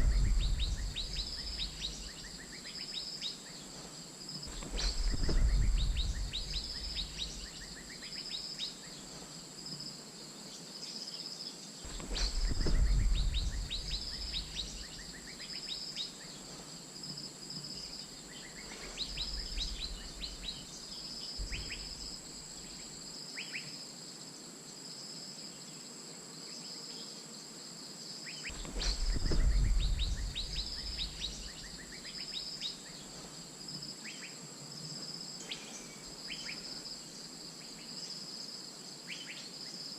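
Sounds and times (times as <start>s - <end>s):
low rumbles: 0.0s - 2.4s, 4.5s - 7.6s, 11.9s - 15.0s, 28.6s - 31.9s
high insect drone: 0.0s - 39.9s.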